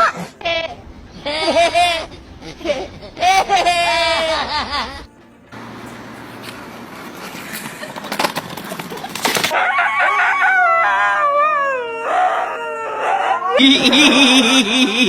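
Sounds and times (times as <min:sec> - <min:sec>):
chicken squawking: 0:00.0 - 0:05.1.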